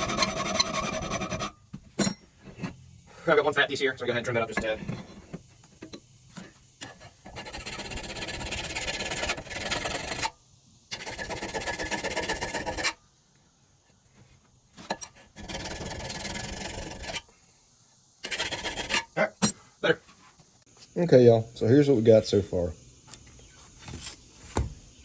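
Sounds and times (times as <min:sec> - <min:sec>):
hand file rasping on steel blade: 0:00.0 - 0:01.6, 0:07.3 - 0:10.3, 0:10.9 - 0:13.0, 0:15.2 - 0:17.2, 0:18.2 - 0:19.1.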